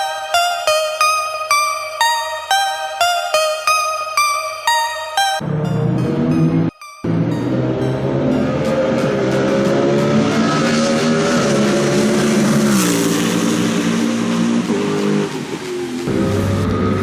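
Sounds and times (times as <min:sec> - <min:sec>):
race car engine at high revs: 0:07.1 - 0:17.0.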